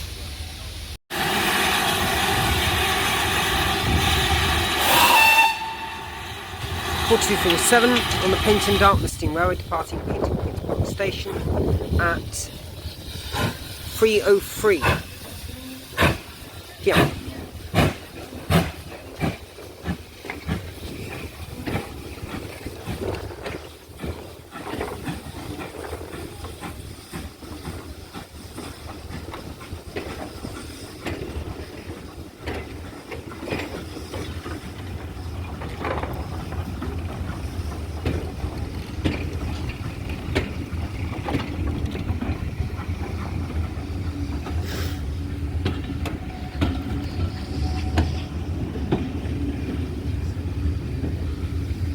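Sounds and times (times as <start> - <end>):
steam hiss: 0.0 - 9.2, 11.1 - 33.0, 44.5 - 45.5
steam locomotive exhaust beats: 0.0 - 51.9
train low rumble: 0.0 - 51.9.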